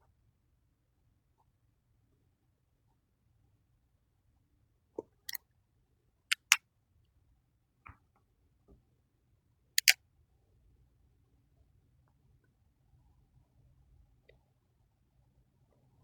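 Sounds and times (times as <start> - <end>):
marker plastic clicks: 6.3 - 6.6.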